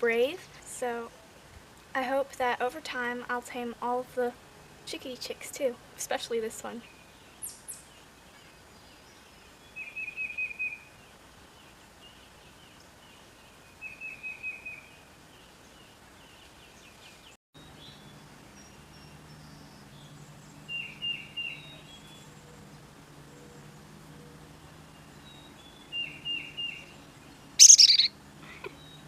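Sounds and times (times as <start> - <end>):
chickadee calling: 27.6 - 28.2.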